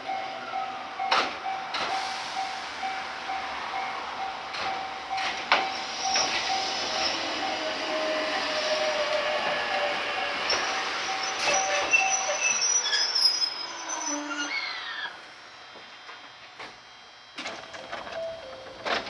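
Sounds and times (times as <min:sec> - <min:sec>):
train wheels squealing: 0:01.7 - 0:15.2.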